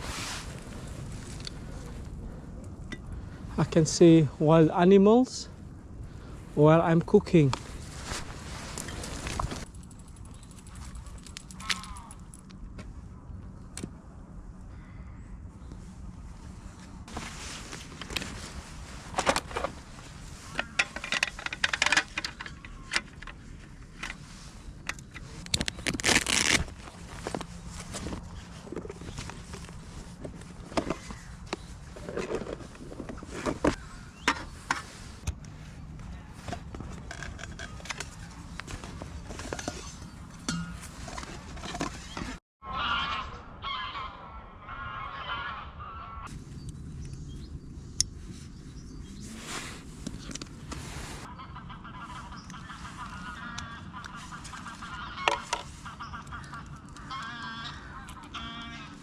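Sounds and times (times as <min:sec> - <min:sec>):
outdoor background noise: 0:00.0 - 0:59.0
camping cookware clinking: 0:20.5 - 0:23.4, 0:36.0 - 0:42.4
geese honking: 0:42.6 - 0:46.3, 0:51.2 - 0:59.0.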